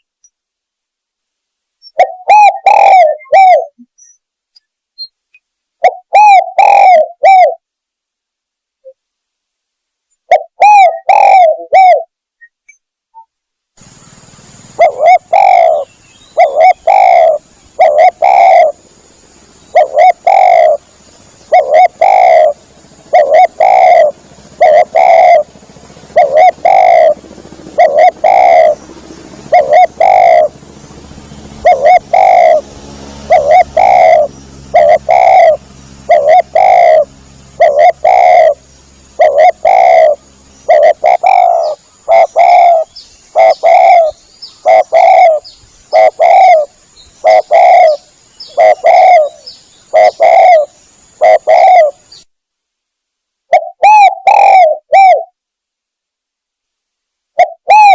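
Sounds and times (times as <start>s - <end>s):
dove cooing: 1.9s - 3.9s, 5.8s - 7.6s, 10.3s - 12.1s, 14.6s - 30.7s, 31.5s - 52.2s, 53.5s - 55.4s, 57.4s - 57.9s.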